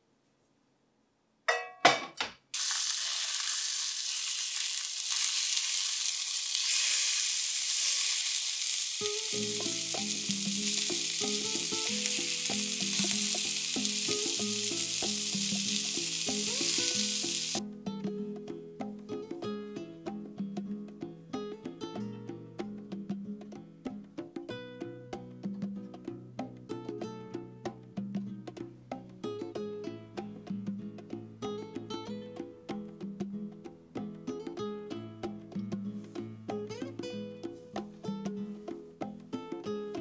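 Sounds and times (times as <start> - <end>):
food sizzling in a pan: 2.5 - 17.6
background music: 9.0 - 24.2.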